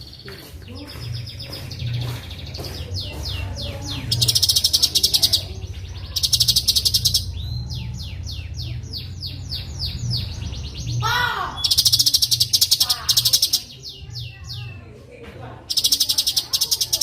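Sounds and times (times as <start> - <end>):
bird whistling: 4.0 - 14.7.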